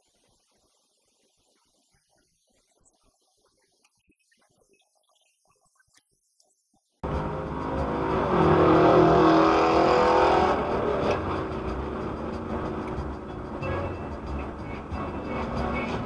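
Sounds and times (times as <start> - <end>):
car engine running hard: 7.0 - 16.0.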